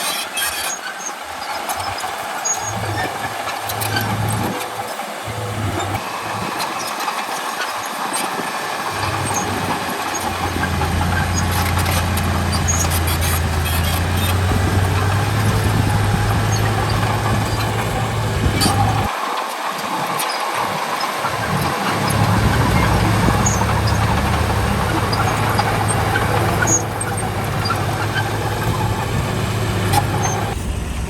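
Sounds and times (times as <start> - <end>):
diesel machinery engine drone: 0.0 - 31.0
broad rumble: 8.9 - 19.1, 21.4 - 31.0.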